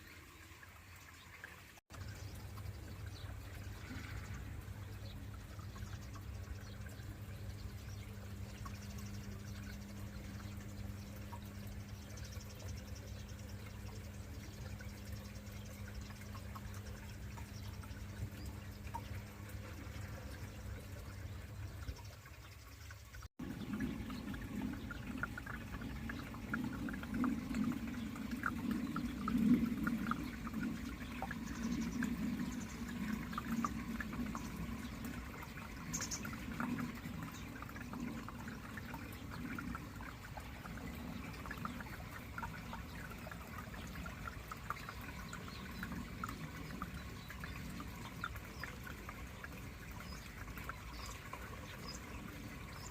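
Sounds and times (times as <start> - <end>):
water pouring and trickling: 0.0 - 52.9
steady low hum: 23.2 - 52.9.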